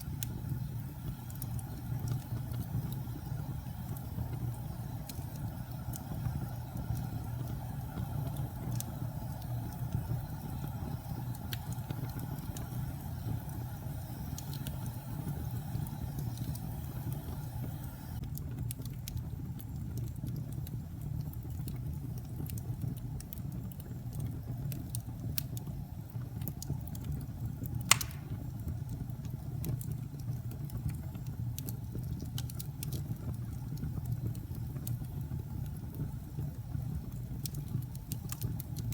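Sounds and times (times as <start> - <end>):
fire crackles: 0.0 - 38.9
wood fire rumbling: 0.0 - 38.9
sharp pop of fire: 27.8 - 28.7.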